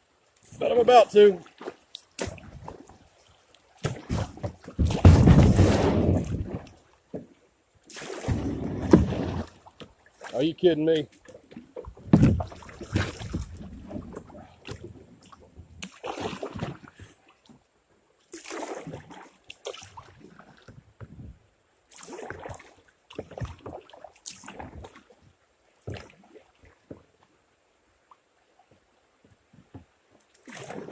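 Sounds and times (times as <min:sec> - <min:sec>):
paddle strokes splashing: 0:00.0 - 0:17.6, 0:18.2 - 0:27.3, 0:27.9 - 0:30.9
kayak hull scraping over rocks: 0:03.8 - 0:06.8, 0:08.2 - 0:09.7, 0:11.5 - 0:15.2
heavy thump: 0:04.8 - 0:06.5.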